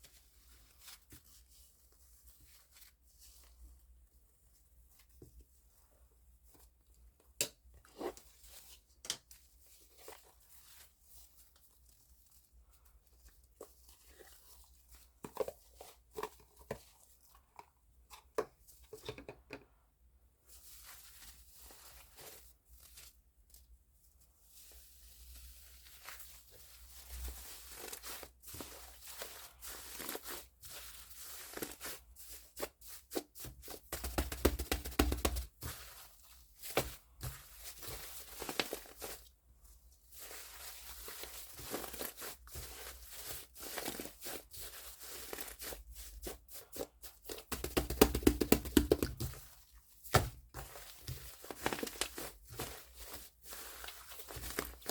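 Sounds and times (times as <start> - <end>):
foam slime crackling and popping: 40.1 - 54.9.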